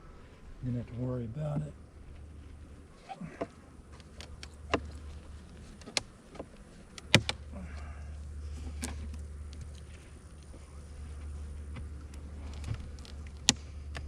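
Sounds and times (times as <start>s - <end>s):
steady low hum: 0.0s - 14.0s
wooden hive frames clicking and knocking: 3.2s - 7.8s.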